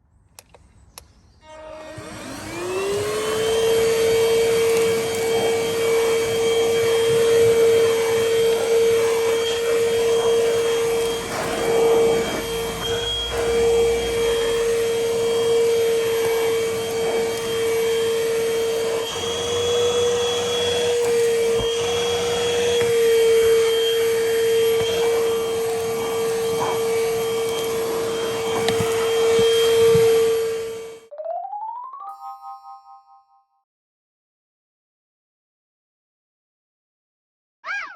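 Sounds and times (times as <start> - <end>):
handheld vacuum motor whining: 1.4 - 31.1.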